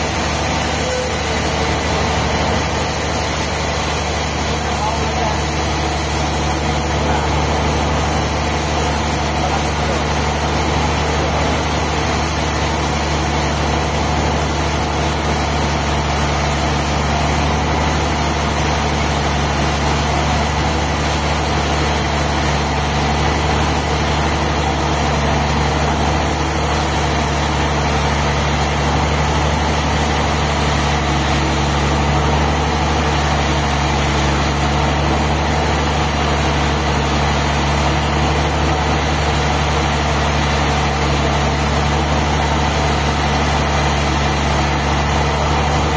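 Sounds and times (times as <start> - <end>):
engine running steadily: 0.0 - 45.9.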